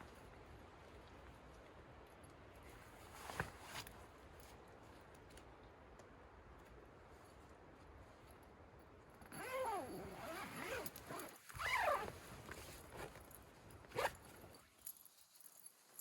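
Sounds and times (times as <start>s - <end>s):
zipper rasping: 9.3s - 13.1s, 13.9s - 14.2s.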